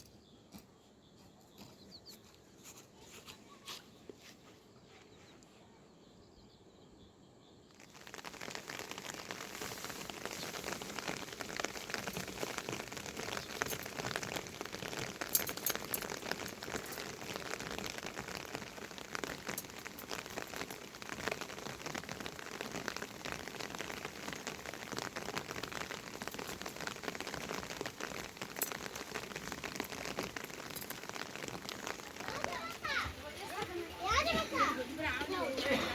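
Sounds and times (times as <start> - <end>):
steady rainfall: 7.7 - 35.9.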